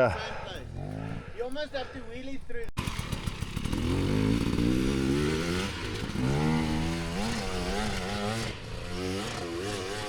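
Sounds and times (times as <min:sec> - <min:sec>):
dirt bike engine revving: 0:00.6 - 0:01.3, 0:02.8 - 0:10.0.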